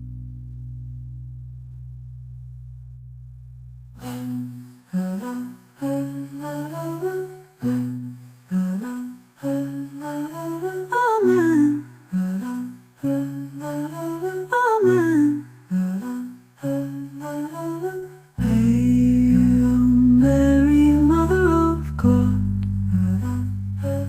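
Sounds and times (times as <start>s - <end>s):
low accompaniment notes: 0.0s - 4.0s, 18.4s - 24.0s
person humming a melody: 4.0s - 24.0s.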